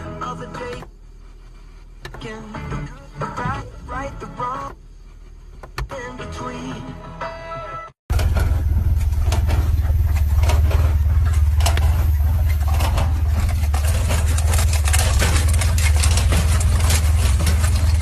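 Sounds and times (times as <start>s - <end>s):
car engine low drone: 8.1s - 18.0s
fast irregular clattering: 8.1s - 18.0s.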